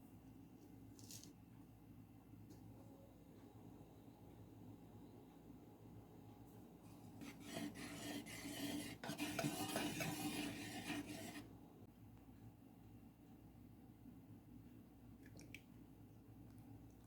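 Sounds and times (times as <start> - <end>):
food scraping strokes: 7.2 - 11.5.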